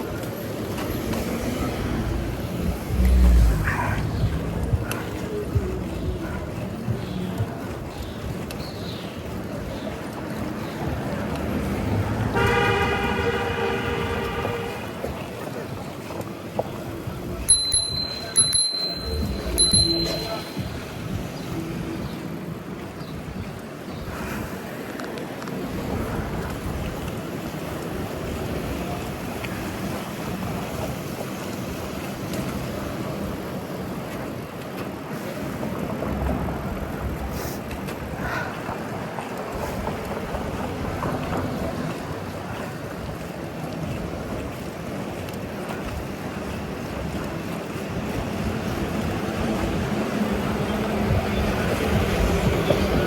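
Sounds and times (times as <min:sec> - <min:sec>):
street traffic hum: 0:00.0 - 0:53.0
vehicle engine hum: 0:00.7 - 0:07.7
wind noise on microphone: 0:11.8 - 0:25.0, 0:35.3 - 0:53.0.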